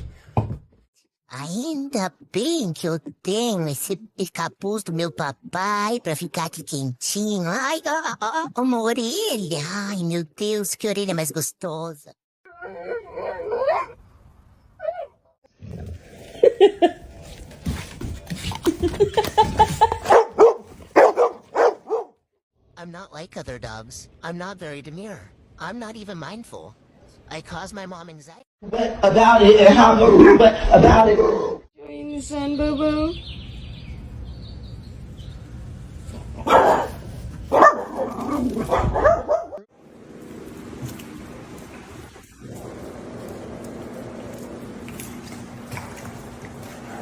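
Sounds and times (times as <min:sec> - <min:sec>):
dog barking and yipping: 0:12.8 - 0:14.0, 0:20.0 - 0:22.2, 0:36.4 - 0:39.7.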